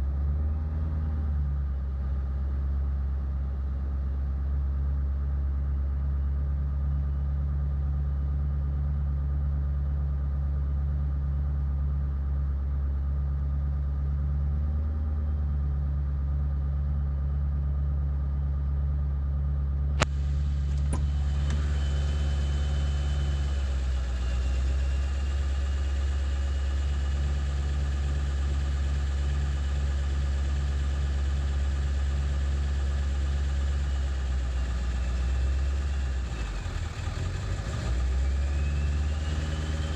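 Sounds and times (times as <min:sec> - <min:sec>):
diesel engine idling roughly: 0:20.0 - 0:39.9.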